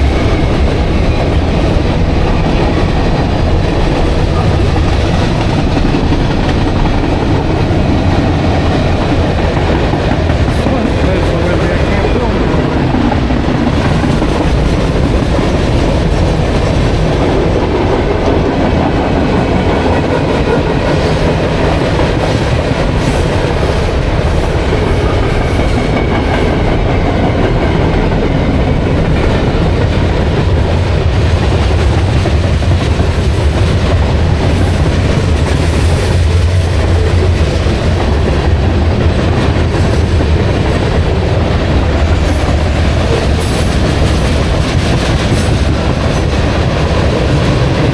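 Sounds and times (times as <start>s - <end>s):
freight train wheels on rails: 0.0s - 47.9s.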